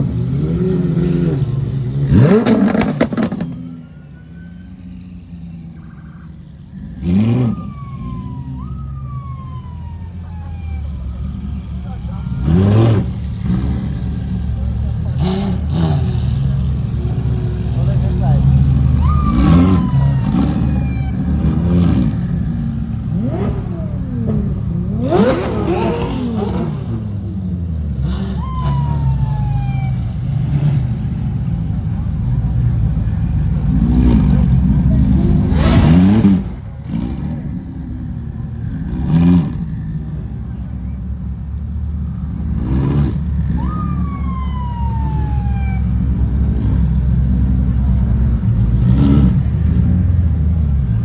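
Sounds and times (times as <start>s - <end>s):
car engines rumbling: 0.0s - 51.0s
engine revving in quick blips: 2.0s - 3.7s, 23.1s - 27.2s, 33.6s - 37.6s.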